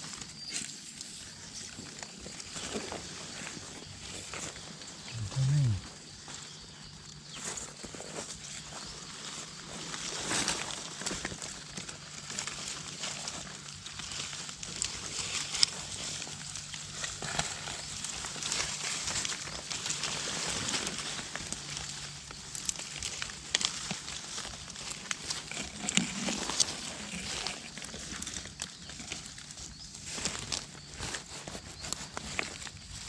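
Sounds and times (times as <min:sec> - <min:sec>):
dry leaves rustling and crackling: 0:07.5 - 0:33.0.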